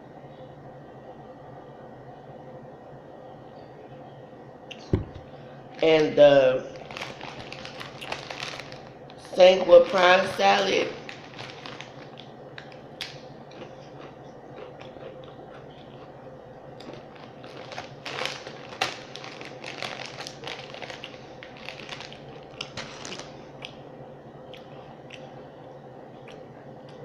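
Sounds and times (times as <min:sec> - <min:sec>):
steady low hum: 0:00.0 - 0:27.0
chewing potato chips: 0:06.7 - 0:10.4, 0:11.0 - 0:27.0.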